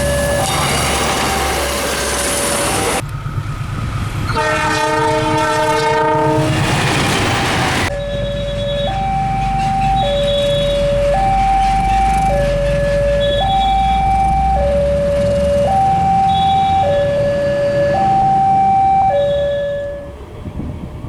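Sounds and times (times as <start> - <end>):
two-tone electronic alarm: 0.0 - 3.0, 7.8 - 20.3.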